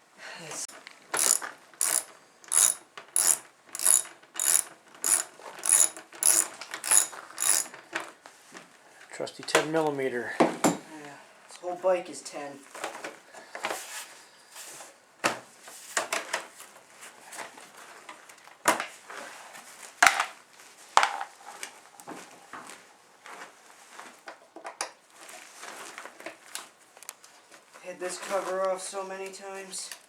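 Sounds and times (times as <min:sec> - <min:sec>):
wrench clicking and clinking on metal: 0:01.2 - 0:07.8.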